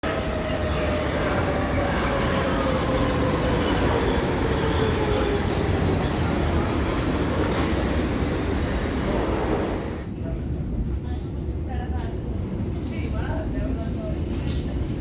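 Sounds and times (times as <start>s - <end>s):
train running rumble: 0.0s - 11.0s
train motor whine: 1.6s - 10.1s.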